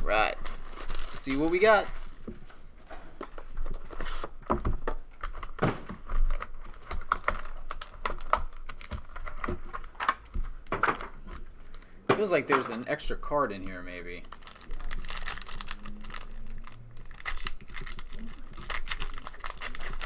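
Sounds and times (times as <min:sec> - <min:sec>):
wrapper crinkling and tearing: 0:00.0 - 0:02.3, 0:05.1 - 0:10.2, 0:13.5 - 0:20.0.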